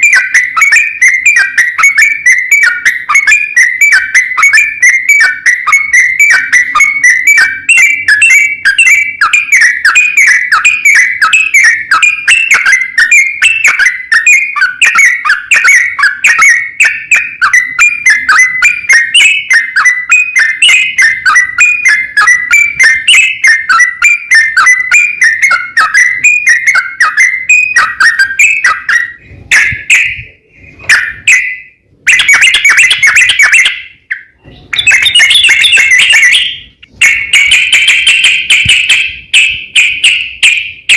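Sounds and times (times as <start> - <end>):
bird singing bubbly whistled notes: 0.0 - 40.9.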